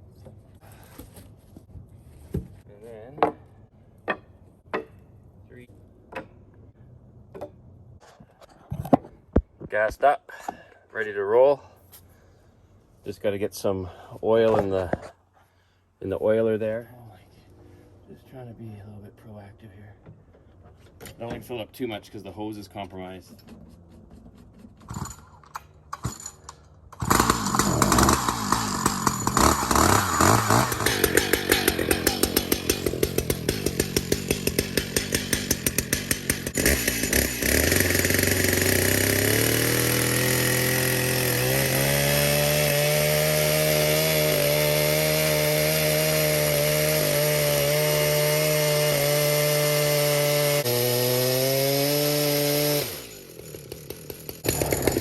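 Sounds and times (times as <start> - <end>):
two-stroke chainsaw running: 27.0 - 55.0.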